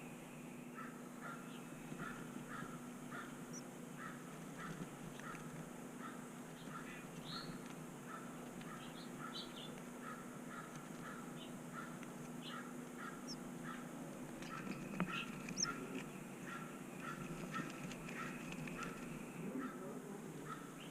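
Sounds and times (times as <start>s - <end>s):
bird calling: 0.0s - 20.9s
high bird chirps: 14.4s - 19.4s.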